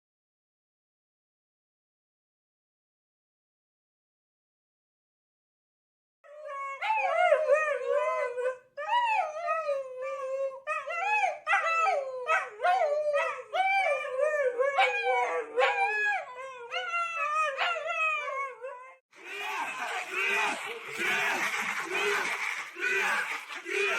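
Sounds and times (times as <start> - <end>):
dog howling: 6.3 - 20.6.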